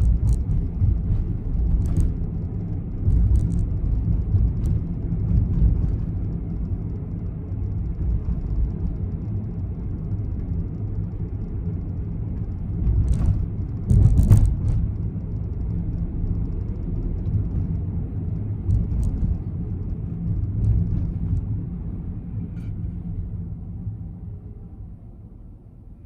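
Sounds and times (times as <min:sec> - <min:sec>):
car engine rumble inside cabin: 0:00.0 - 0:26.0
brief clicks or rattles: 0:12.9 - 0:15.1, 0:18.7 - 0:21.4.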